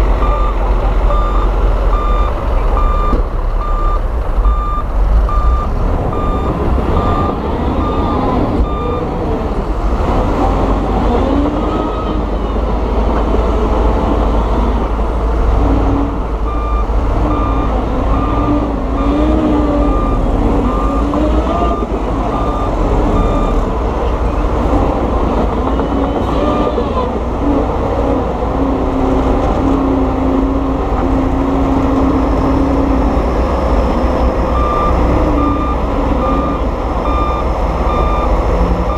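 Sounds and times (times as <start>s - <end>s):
heavy diesel machines running: 0.0s - 38.9s
reversing alarm beeping: 0.2s - 9.1s, 16.5s - 23.6s, 33.6s - 38.9s.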